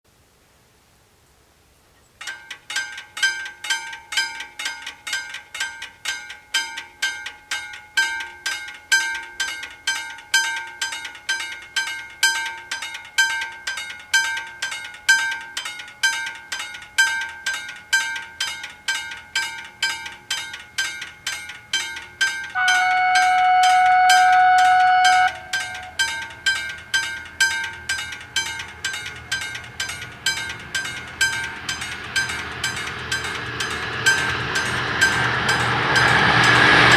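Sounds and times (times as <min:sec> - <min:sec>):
level crossing warning bells: 0:02.2 - 0:36.9
train horn blast: 0:22.5 - 0:26.4, 0:32.2 - 0:36.9.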